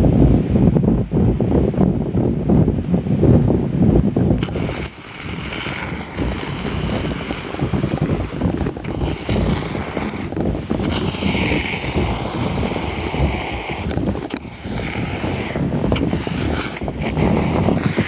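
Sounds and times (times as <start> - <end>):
wind buffeting microphone: 0.0 - 18.0
kayak hull scraping over snow: 4.1 - 18.0.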